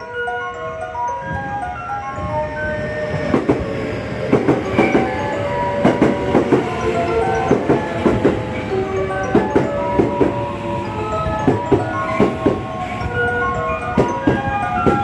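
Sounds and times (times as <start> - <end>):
train rolling rumble: 0.1 - 15.0
train wheels clacking over rail joints: 3.2 - 13.2, 13.8 - 15.0.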